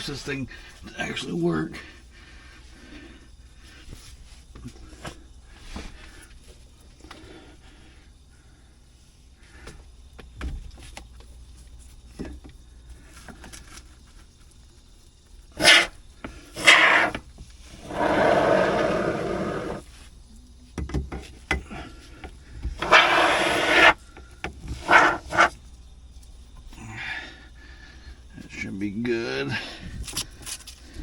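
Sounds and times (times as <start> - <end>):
spray foam sputtering and hissing: 22.8 - 24.0.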